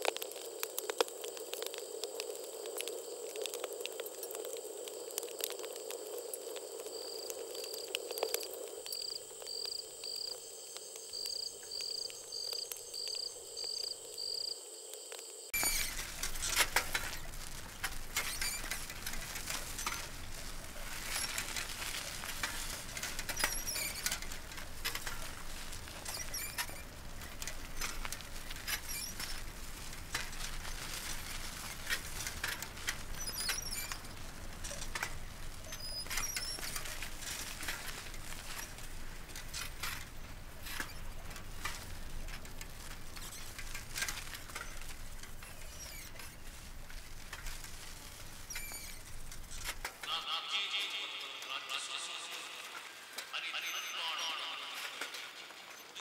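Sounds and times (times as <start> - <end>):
bicycle rattling and squeaking: 15.5 - 50.1.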